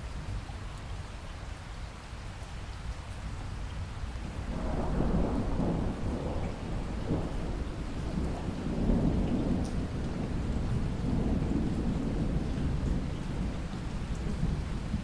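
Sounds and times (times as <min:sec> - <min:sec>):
steady rain: 0:00.0 - 0:15.0
rumble of thunder: 0:04.3 - 0:15.0.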